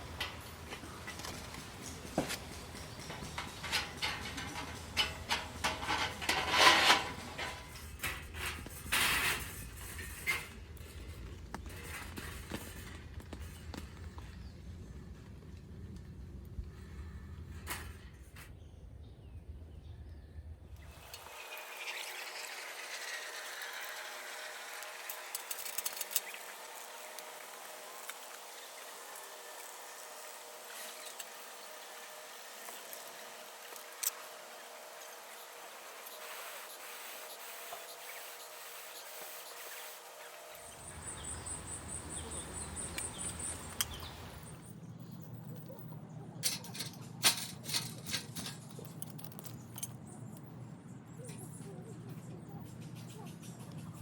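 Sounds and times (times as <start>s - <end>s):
objects knocking and clattering: 0.2s - 9.0s.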